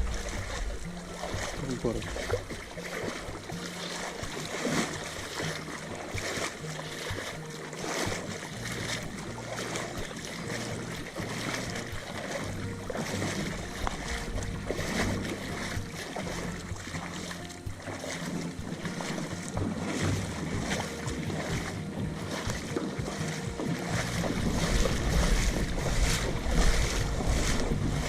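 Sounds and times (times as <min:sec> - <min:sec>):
wind on microphone: 0:00.0 - 0:05.6, 0:08.1 - 0:28.0
small waves lapping: 0:00.0 - 0:28.0.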